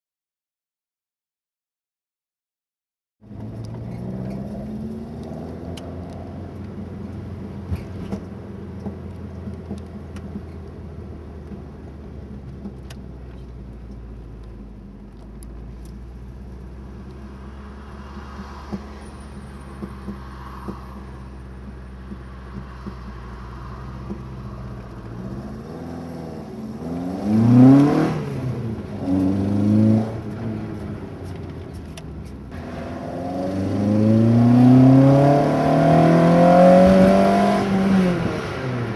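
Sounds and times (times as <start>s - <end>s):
car engine revving: 3.2s - 8.2s, 15.8s - 38.9s.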